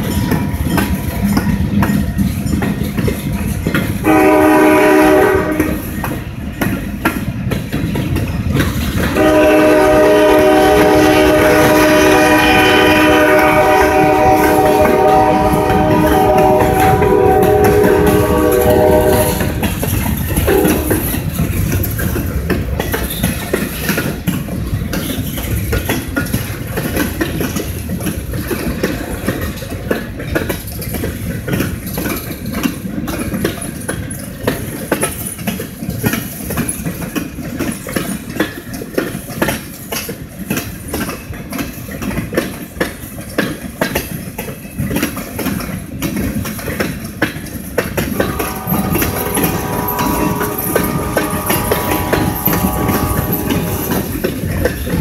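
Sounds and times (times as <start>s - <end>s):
freight train rumbling past: 0.0s - 55.0s
wheels clacking over rail joints: 0.0s - 55.0s
steady pitched tone: 48.1s - 54.3s.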